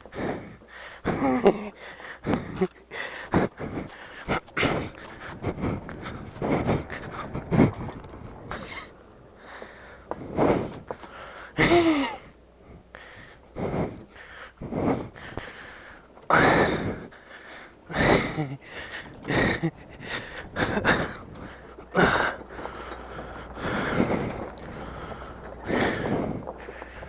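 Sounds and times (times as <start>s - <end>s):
man gasping breaths: 0.0s - 27.0s
man groaning: 1.1s - 1.8s, 11.6s - 12.3s.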